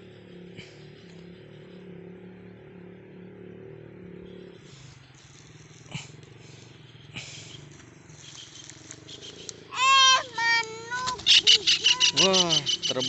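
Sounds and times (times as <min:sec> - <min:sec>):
engine humming: 0:00.0 - 0:13.0
sharp clicks: 0:05.1 - 0:12.2.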